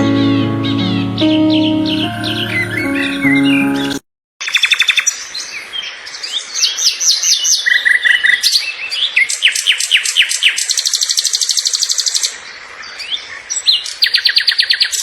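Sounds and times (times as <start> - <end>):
small birds chirping: 4.4 - 15.0.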